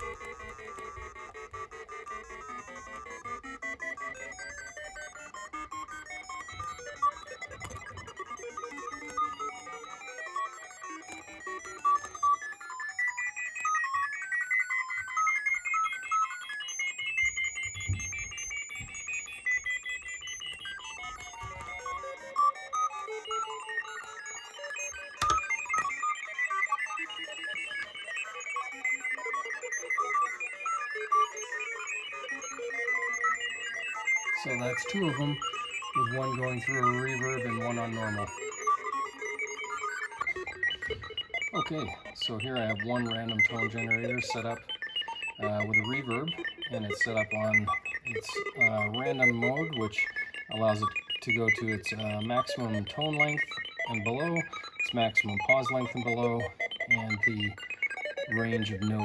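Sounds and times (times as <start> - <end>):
sharp clicks: 0.0 - 14.2, 24.9 - 26.1
random electronic beeps: 0.0 - 59.0.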